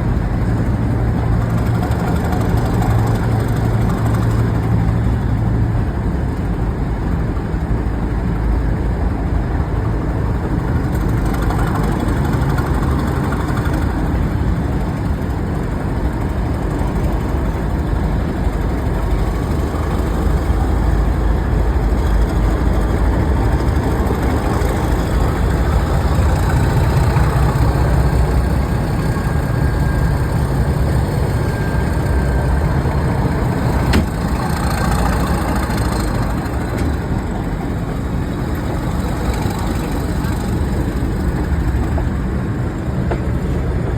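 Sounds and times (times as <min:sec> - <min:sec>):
train engine rumble: 0:00.0 - 0:43.9
faint rising whine: 0:13.8 - 0:43.9.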